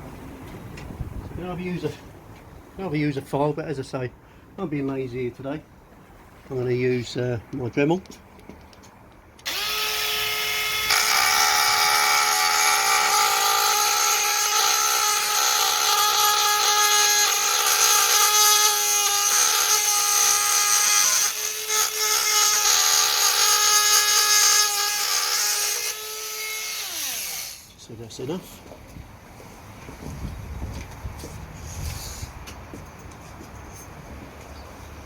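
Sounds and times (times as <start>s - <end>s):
rotary tool grinding plastic: 9.4s - 27.7s.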